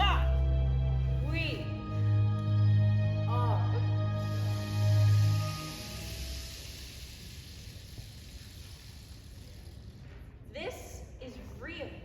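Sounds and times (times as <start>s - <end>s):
held music notes: 0.0s - 6.7s
recording hiss: 1.8s - 11.7s.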